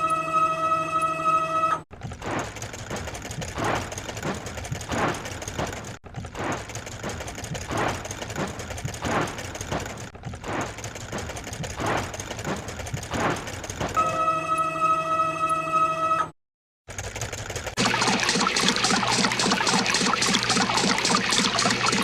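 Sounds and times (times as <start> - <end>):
fast mechanical clicking: 1.9 - 14.0, 16.9 - 22.0.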